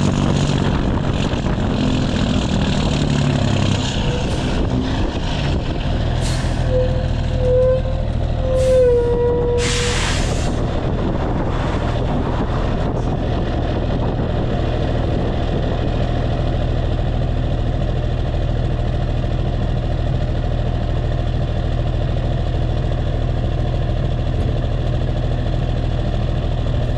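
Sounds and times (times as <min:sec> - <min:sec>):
diesel truck idling: 0:00.0 - 0:26.9
air brakes hissing: 0:06.2 - 0:07.0, 0:08.5 - 0:10.7.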